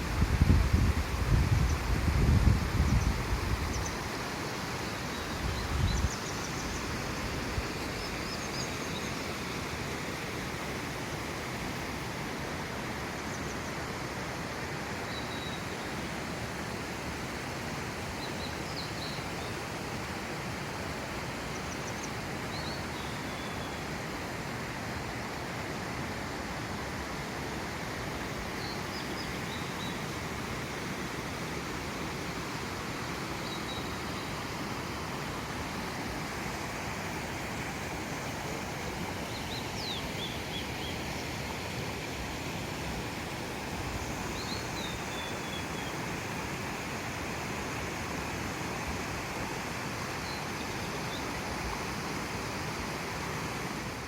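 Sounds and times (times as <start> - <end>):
wind buffeting microphone: 0.0 - 3.8
steady outdoor noise: 0.0 - 54.0.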